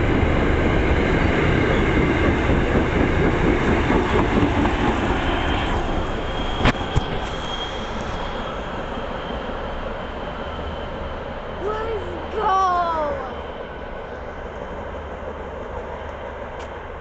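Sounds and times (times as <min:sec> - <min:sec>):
train rumbling on tracks: 0:00.0 - 0:17.0
thin high whine: 0:05.4 - 0:09.7.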